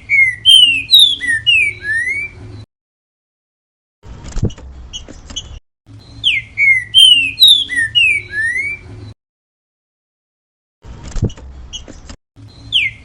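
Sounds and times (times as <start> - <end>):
bird whistled song: 0.0 - 2.4, 6.0 - 8.9, 12.5 - 13.0.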